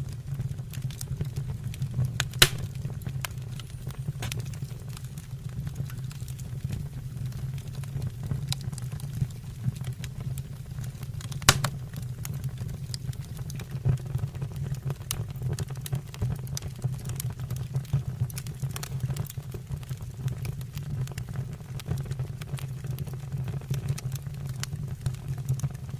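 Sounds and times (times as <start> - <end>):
wood fire crackling and popping: 0.0 - 25.9
steady low hum: 2.1 - 13.7.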